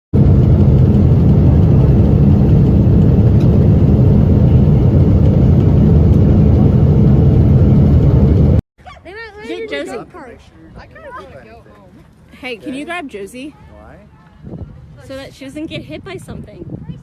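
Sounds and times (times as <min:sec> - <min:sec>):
airliner cabin roar: 0:00.1 - 0:08.6.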